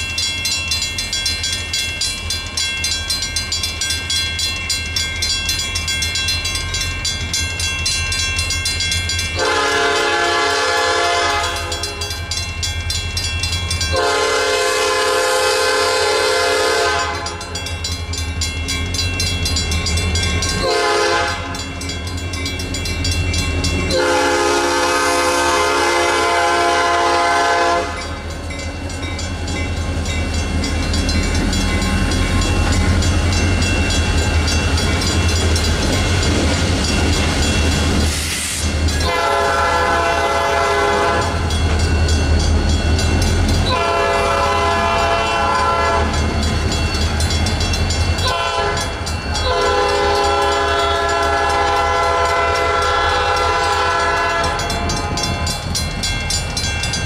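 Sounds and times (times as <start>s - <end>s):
crossing bells ringing: 0.0s - 57.0s
diesel locomotive engine rumble: 0.0s - 57.0s
locomotive horn blasts: 9.4s - 12.0s, 13.9s - 17.4s, 20.6s - 21.6s, 23.9s - 28.2s, 39.0s - 41.4s, 43.7s - 46.2s, 48.2s - 55.2s.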